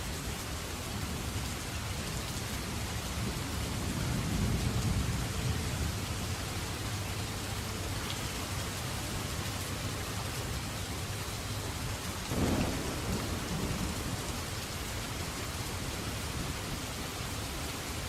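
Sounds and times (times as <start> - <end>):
steady rain: 0.0 - 18.0
distant thunder rumble: 12.3 - 17.8.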